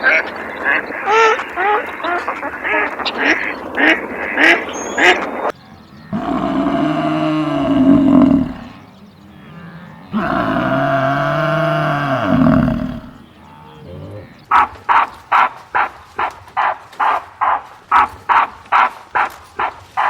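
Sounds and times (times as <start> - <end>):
animal long low calls: 6.1 - 14.3.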